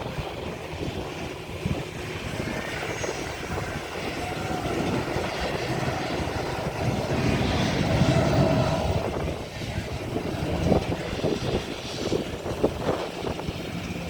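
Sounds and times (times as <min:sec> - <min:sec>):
airliner engines: 0:00.0 - 0:14.0.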